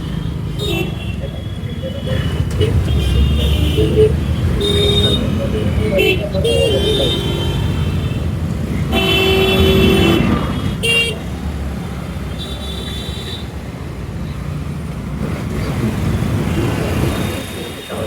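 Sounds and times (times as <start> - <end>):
vehicle horns honking: 0.0 - 13.8
road and wind noise rumble: 0.0 - 18.0.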